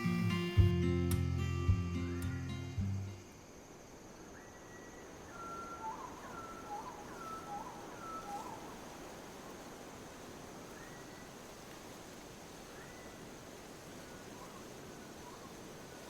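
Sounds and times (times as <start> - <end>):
faint outdoor background noise: 0.0 - 16.0
songbird calling: 4.3 - 8.9.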